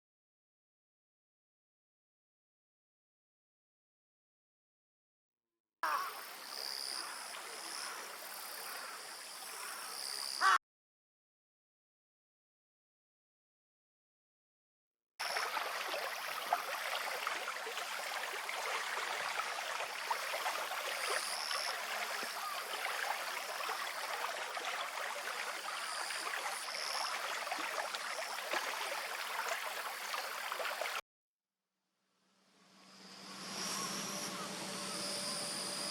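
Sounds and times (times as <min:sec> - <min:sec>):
stream water burbling: 0:06.1 - 0:09.8, 0:15.2 - 0:31.0.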